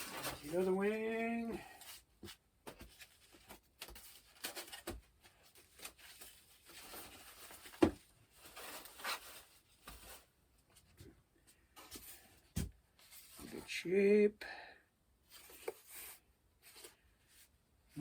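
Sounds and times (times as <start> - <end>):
packaging rustling: 0.0 - 0.7, 1.7 - 10.3.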